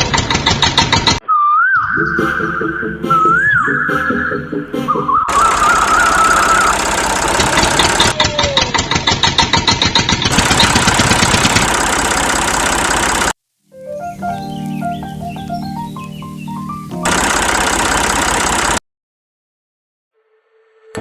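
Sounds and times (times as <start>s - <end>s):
motor running with fast rattle: 0.0s - 1.2s, 5.3s - 13.4s, 17.1s - 18.8s
music: 1.6s - 5.3s, 13.7s - 17.1s, 20.2s - 21.0s.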